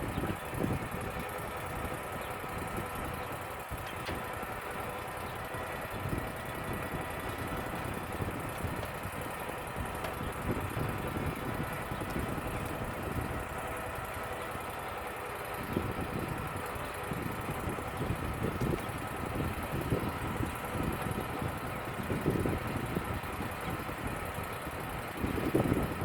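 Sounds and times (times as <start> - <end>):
wind gusting on microphone: 0.0 - 2.0, 5.6 - 13.6, 15.6 - 26.0
sawmill engine running: 0.0 - 26.0.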